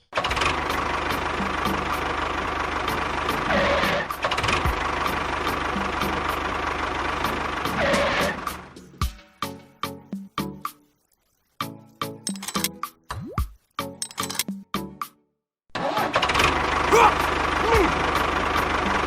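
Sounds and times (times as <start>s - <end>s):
engine running with ticking knock: 0.2s - 8.8s, 16.2s - 19.0s.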